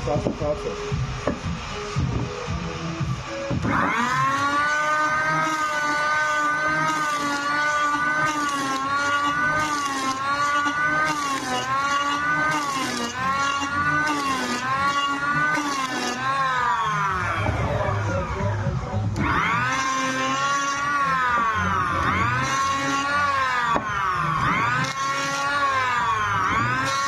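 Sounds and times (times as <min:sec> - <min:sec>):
electric hand planer shaving wood: 0:00.0 - 0:27.0.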